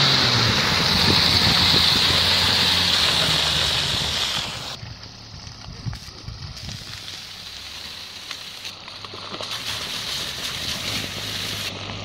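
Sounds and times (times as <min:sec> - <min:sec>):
loud rushing hiss: 0:00.0 - 0:04.8, 0:09.4 - 0:11.7
suv engine running: 0:00.0 - 0:12.0.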